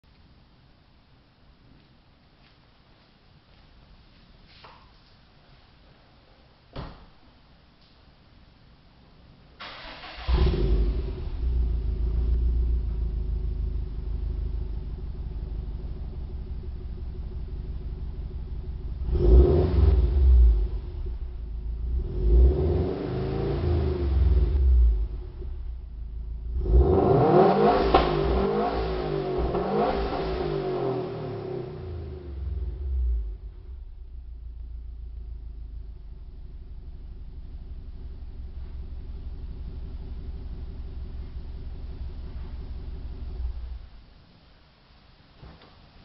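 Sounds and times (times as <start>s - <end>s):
car engine idling and revving: 9.8s - 44.0s.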